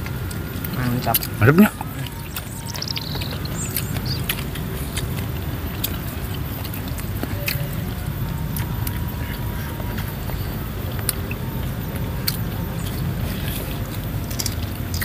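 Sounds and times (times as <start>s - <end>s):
person chewing: 0.0s - 15.0s
sharp clicks and smacks: 9.9s - 15.0s.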